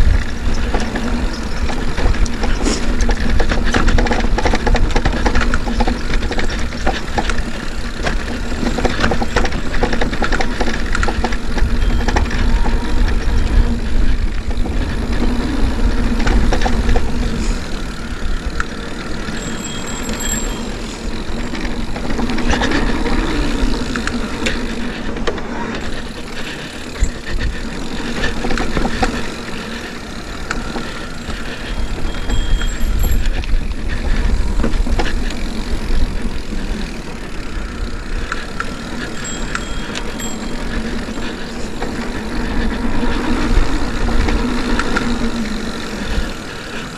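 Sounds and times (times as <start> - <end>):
clicks and rattles: 0.0 - 36.3
bike rolling over dirt trail: 0.0 - 46.9
wind on microphone: 0.0 - 46.9.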